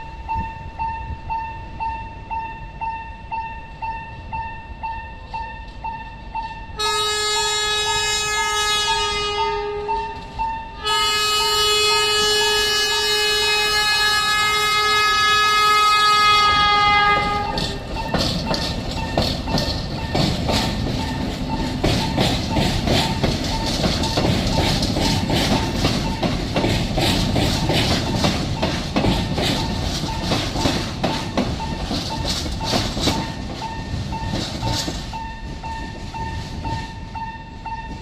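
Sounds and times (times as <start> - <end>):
locomotive whistle blasts: 6.8 - 10.2, 10.8 - 17.6
wheels clattering over rail joints: 16.4 - 38.0.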